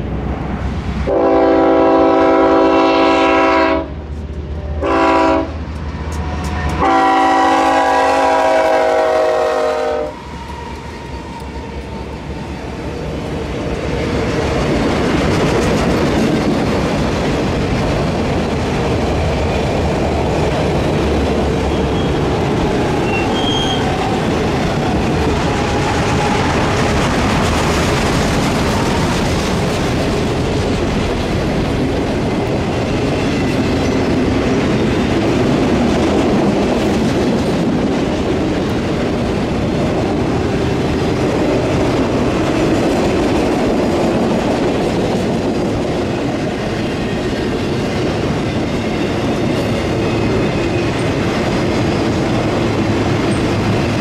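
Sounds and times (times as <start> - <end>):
train rolling on rails: 0.0 - 54.0
locomotive horn blasts: 1.1 - 4.0, 4.7 - 5.6, 6.6 - 10.2.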